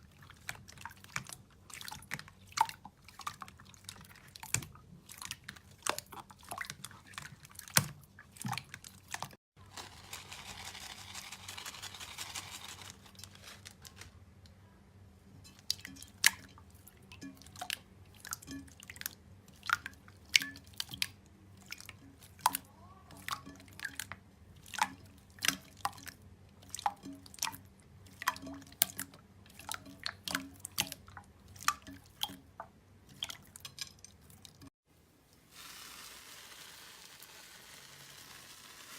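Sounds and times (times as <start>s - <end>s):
hissing crackle: 35.5s - 38.9s.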